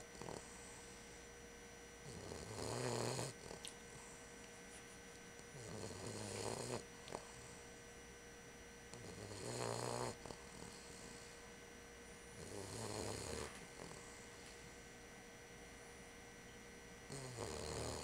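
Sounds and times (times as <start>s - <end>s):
puppy snoring: 0.0s - 1.2s, 2.0s - 4.2s, 5.4s - 7.7s, 8.9s - 11.5s, 12.3s - 14.8s, 17.0s - 18.0s.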